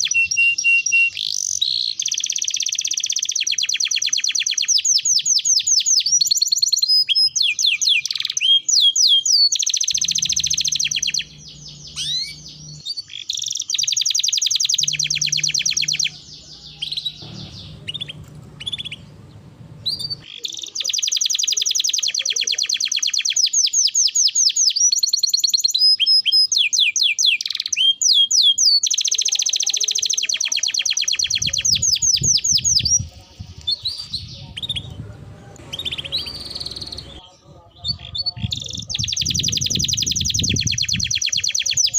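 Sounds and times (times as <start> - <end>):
canary singing trills: 0.0 - 41.9
faint low hum: 9.9 - 12.8, 14.6 - 20.3, 32.8 - 39.0.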